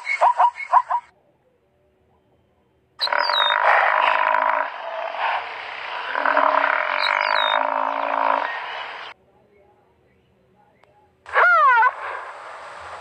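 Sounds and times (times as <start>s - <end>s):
buffalo calling: 3.0s - 9.1s, 11.3s - 12.2s.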